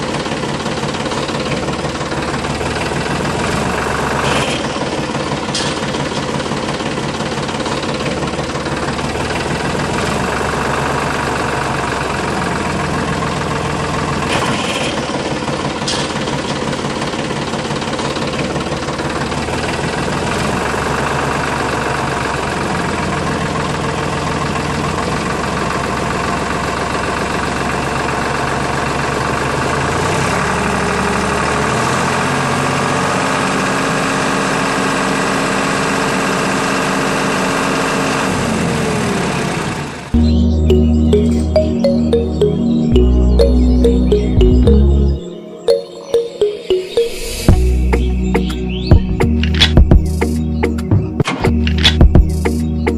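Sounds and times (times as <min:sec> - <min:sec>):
tractor engine idling with knocking: 0:00.0 - 0:40.1.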